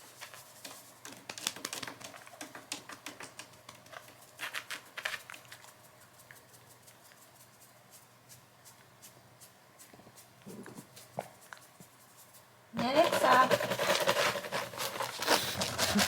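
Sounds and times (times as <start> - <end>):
pet claws clicking on hard floor: 0.0 - 7.6, 12.8 - 16.0.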